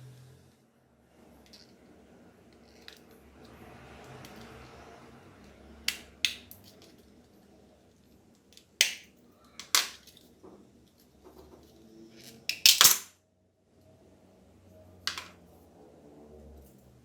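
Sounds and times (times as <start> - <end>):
clicks and taps of small parts: 5.9 - 7.0, 8.6 - 10.2, 12.5 - 13.1.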